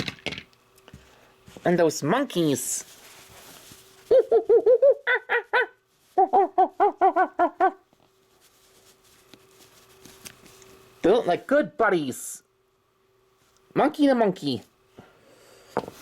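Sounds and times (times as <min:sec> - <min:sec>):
person imitating monkey hoots: 0:04.1 - 0:07.8.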